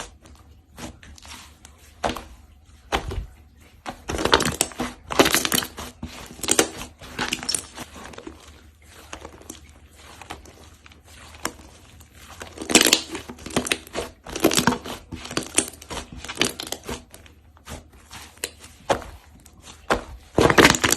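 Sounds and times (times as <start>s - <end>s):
slime crackling and popping: 4.1s - 8.4s, 12.4s - 17.1s, 19.8s - 20.9s.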